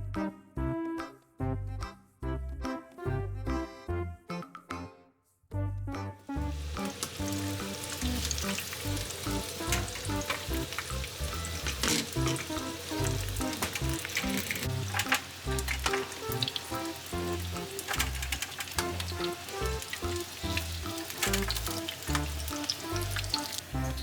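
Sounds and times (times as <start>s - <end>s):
background music with bass line: 0.0s - 24.0s
food sizzling in a pan: 6.3s - 24.0s
utensil clicking against pan: 6.6s - 24.0s.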